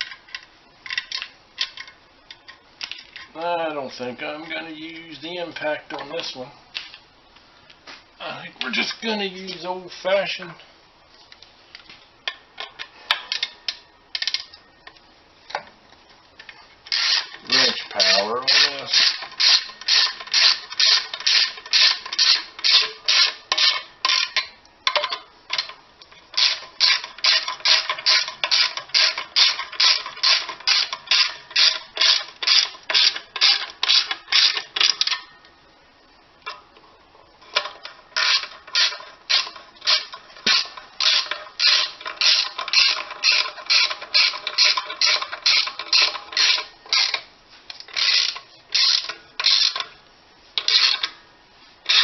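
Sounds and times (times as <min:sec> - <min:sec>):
ratchet wrench clicking: 0:16.9 - 0:25.7, 0:26.4 - 0:35.2, 0:37.6 - 0:47.2, 0:47.9 - 0:49.9, 0:50.6 - 0:51.2.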